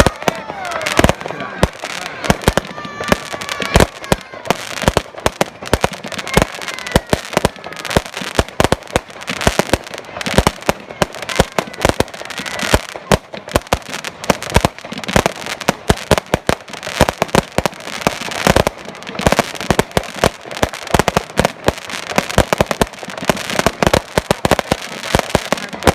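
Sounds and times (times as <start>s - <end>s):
fireworks bangs and crackles: 0.0s - 25.9s.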